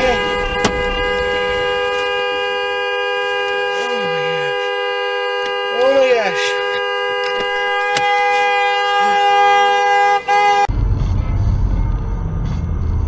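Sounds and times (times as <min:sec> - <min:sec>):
vehicle horn blast: 0:00.0 - 0:10.7
low engine and road rumble: 0:00.0 - 0:13.0.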